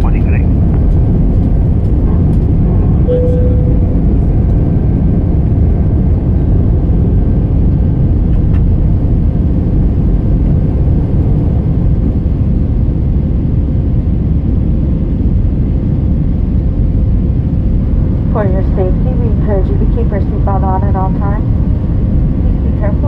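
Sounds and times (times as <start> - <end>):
jet engines and airflow rumble: 0.0 - 23.0
faint steady tone: 3.1 - 4.1.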